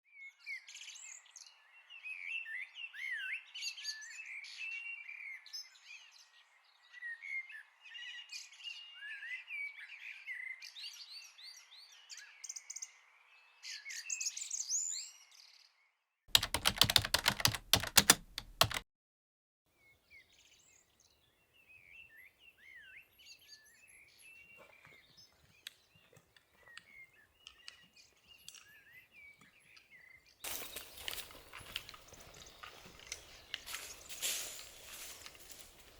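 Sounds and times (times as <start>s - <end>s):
rapid clicks: 16.3s - 18.8s.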